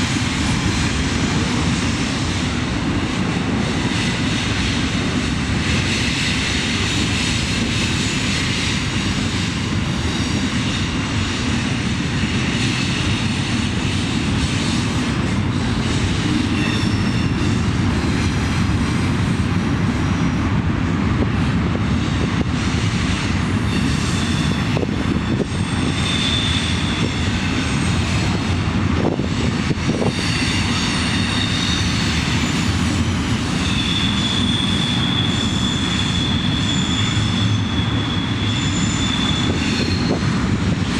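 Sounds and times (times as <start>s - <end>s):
diesel locomotive rumbling past: 0.0s - 40.9s
wheels squealing: 23.6s - 28.5s, 29.8s - 40.9s.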